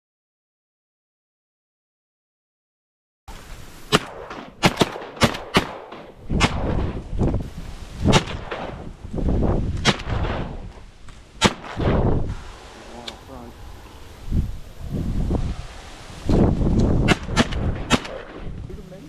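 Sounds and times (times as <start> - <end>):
shotgun shots: 3.9 - 7.0, 8.1 - 8.9, 9.8 - 10.7, 11.4 - 12.3, 17.0 - 18.5.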